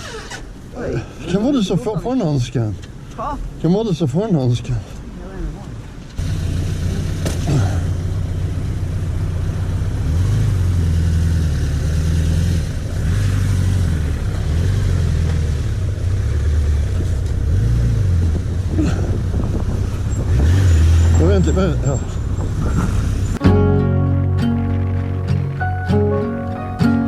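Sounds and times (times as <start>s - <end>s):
wind and road noise: 0.0s - 23.4s, 24.2s - 27.0s
motorcycle engine running: 6.2s - 20.4s.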